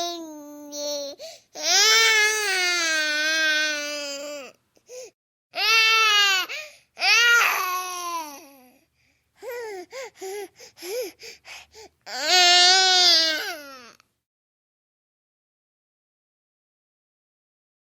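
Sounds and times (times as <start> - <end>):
baby crying: 0.0 - 4.5, 5.6 - 8.7, 12.1 - 14.0.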